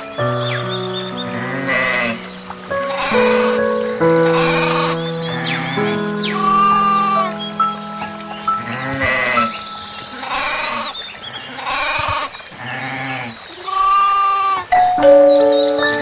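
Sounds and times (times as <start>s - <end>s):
background music with sustained tones: 0.0s - 11.5s, 14.7s - 16.0s
quavering animal bleats: 1.3s - 2.2s, 10.2s - 10.9s.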